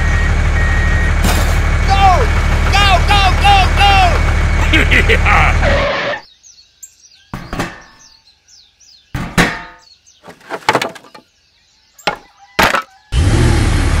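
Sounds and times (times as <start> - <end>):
faint high bird chirps: 6.2 - 10.4, 11.0 - 13.2
sharp ringing knocks: 9.1 - 9.9.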